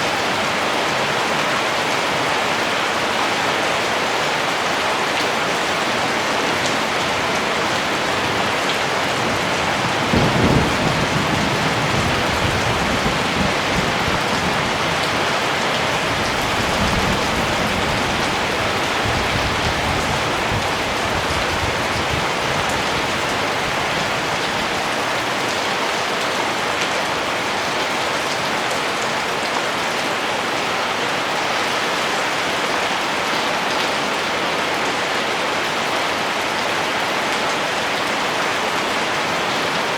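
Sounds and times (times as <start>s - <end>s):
steady rain: 0.0s - 39.9s
thunder rumbling: 8.4s - 23.8s.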